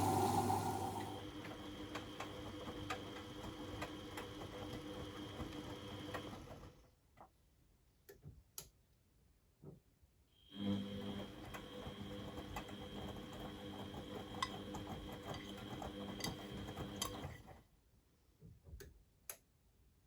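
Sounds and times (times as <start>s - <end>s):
washing machine humming: 0.0s - 6.8s, 10.6s - 17.6s.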